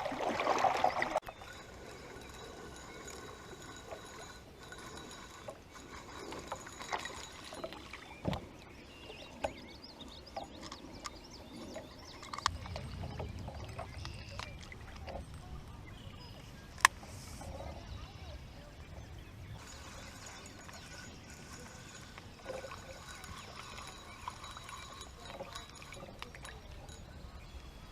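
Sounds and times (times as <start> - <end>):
knocks and clicks against hull: 5.5 - 8.6, 10.3 - 15.9.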